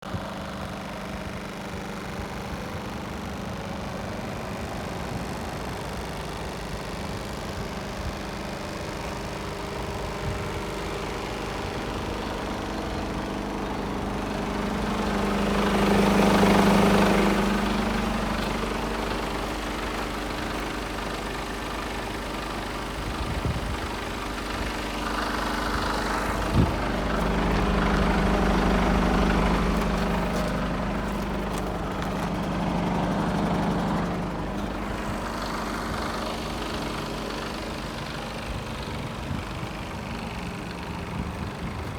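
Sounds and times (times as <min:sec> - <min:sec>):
diesel truck engine idling: 0:00.0 - 0:41.9.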